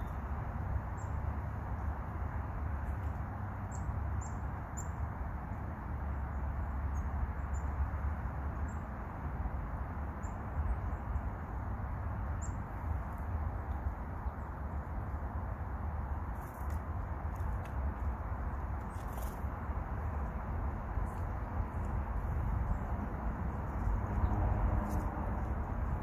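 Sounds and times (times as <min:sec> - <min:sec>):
songbirds chirping: 0:00.0 - 0:26.0
steady low rumble: 0:09.5 - 0:26.0.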